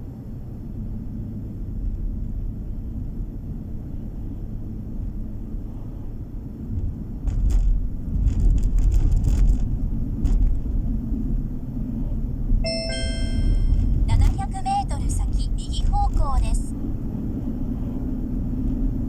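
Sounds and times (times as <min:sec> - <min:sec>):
car engine and tyre rumble: 0:00.0 - 0:12.6, 0:13.6 - 0:19.0
electronic chime: 0:12.7 - 0:14.2.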